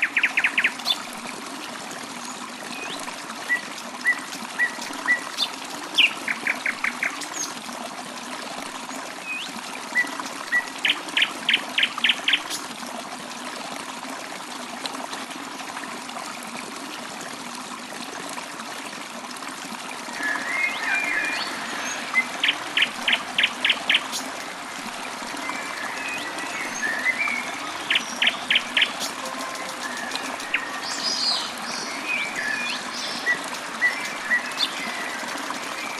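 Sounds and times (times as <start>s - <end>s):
stream trickling: 0.0s - 35.9s
birds chirping: 25.2s - 35.9s.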